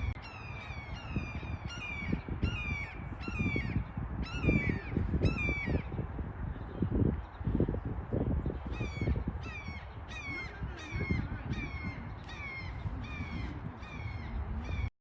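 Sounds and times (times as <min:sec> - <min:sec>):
bird calling: 0:08.7 - 0:14.9.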